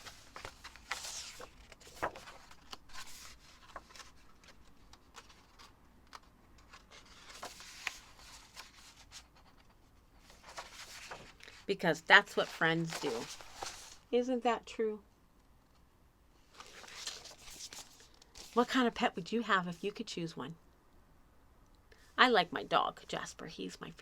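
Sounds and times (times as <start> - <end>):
paper pages rustling: 0.0 - 14.1, 16.5 - 18.7.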